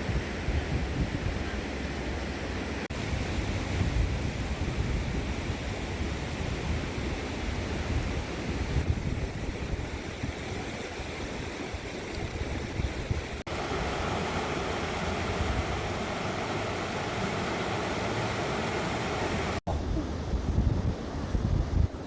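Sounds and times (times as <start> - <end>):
outdoor rushing noise: 13.5 - 19.8.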